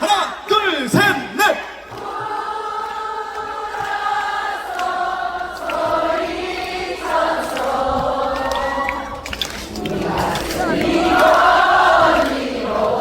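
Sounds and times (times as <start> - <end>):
crowd singing in unison: 1.5 - 13.0.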